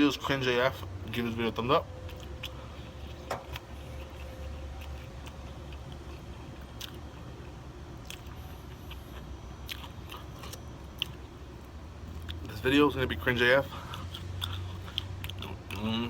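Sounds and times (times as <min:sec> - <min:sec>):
steady low hum: 0:00.0 - 0:16.0
chewing and mouth smacking: 0:02.0 - 0:12.5, 0:13.8 - 0:16.0.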